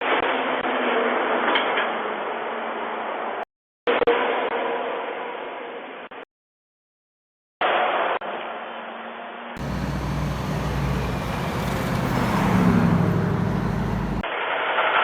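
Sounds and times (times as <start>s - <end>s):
road traffic noise: 9.6s - 14.2s
truck engine rumbling past: 9.6s - 14.2s.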